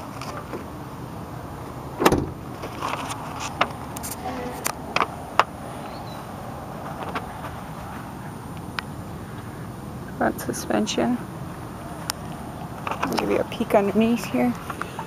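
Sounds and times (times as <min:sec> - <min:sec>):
truck door shutting: 0:02.0 - 0:03.8.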